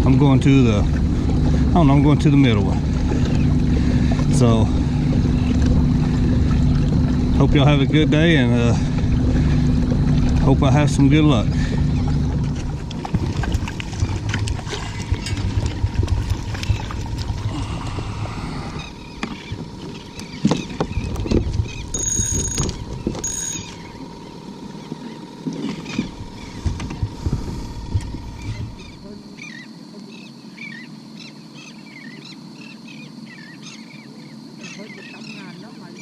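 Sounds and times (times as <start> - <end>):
wind buffeting microphone: 0.0 - 19.8, 26.0 - 29.0
kayak splashing through water: 0.0 - 29.2
birds chirping: 0.0 - 36.0
knocks against hull: 19.1 - 21.8, 25.4 - 28.8.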